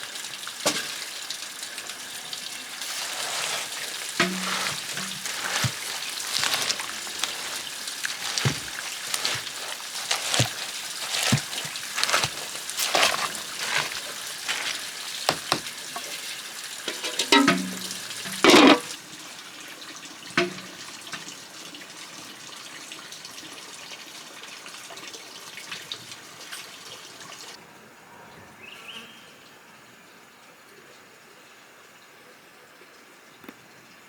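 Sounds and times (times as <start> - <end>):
running splashing water: 0.0 - 19.1, 20.3 - 21.3.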